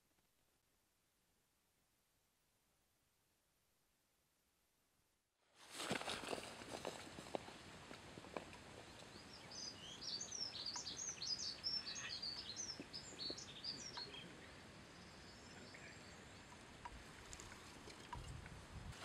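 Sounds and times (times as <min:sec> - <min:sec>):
faint outdoor hiss: 0:00.0 - 0:19.0
songbird chirping: 0:08.4 - 0:18.4.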